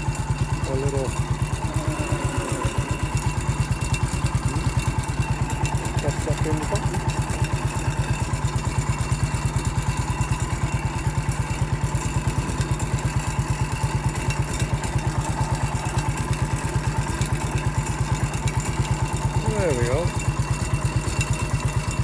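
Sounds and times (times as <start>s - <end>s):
garden tractor engine running: 0.0s - 22.0s.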